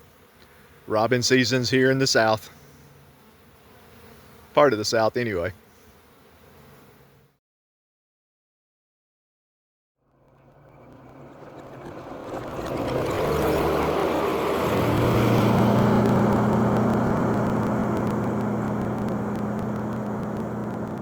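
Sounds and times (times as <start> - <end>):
engine humming: 10.1 - 21.0.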